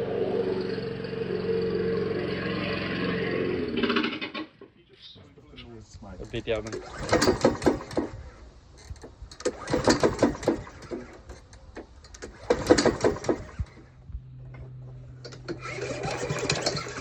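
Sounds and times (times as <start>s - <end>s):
mower engine running: 0.0s - 4.4s, 12.1s - 17.0s
mower engine pull-cranked: 6.1s - 17.0s.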